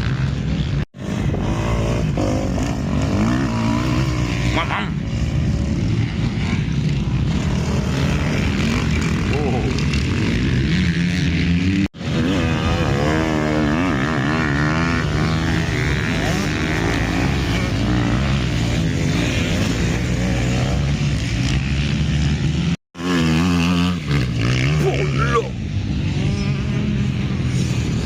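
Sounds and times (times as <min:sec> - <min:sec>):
motocross bike engines revving: 0:00.0 - 0:28.0.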